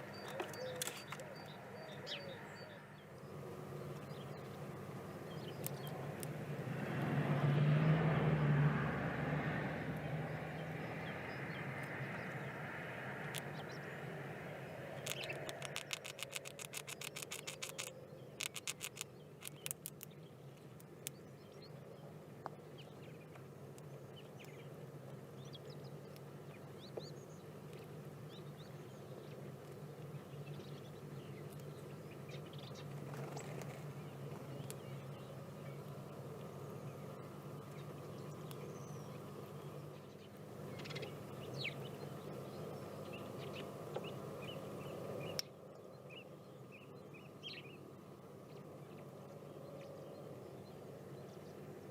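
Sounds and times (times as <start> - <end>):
faint bird chirps: 0.0 - 3.3
vehicle passing: 4.5 - 17.5
rapid rattle of sharp clicks: 15.0 - 20.1.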